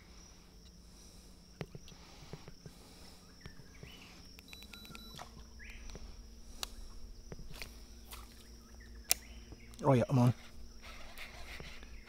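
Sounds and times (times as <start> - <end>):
high-pitched insect buzz: 0.0 - 12.0
bird chirps: 3.0 - 7.0, 7.7 - 12.0
sharp click: 9.0 - 9.8.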